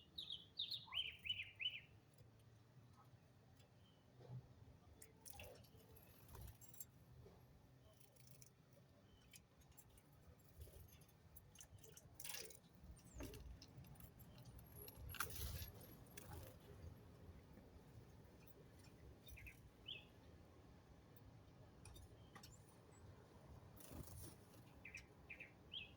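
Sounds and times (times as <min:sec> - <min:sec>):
faint clicks and rattles: 0:02.2 - 0:19.6.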